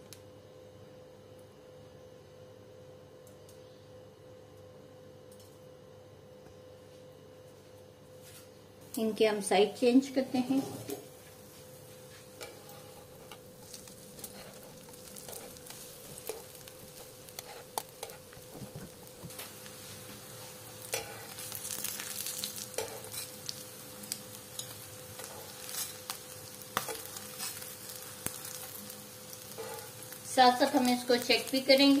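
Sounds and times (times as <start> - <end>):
bread sizzling in oil: 10.3 - 32.0.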